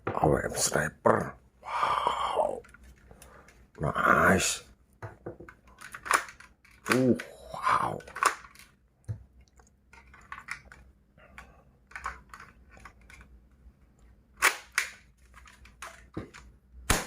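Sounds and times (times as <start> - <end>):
plastic toy gun clicks and knocks: 5.0 - 7.3, 8.0 - 9.2, 14.4 - 16.5.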